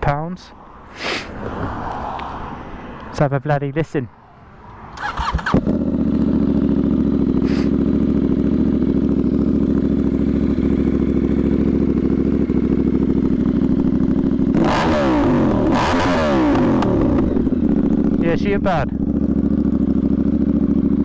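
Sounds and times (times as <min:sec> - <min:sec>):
motorcycle engine idling and revving: 0:04.6 - 0:21.0.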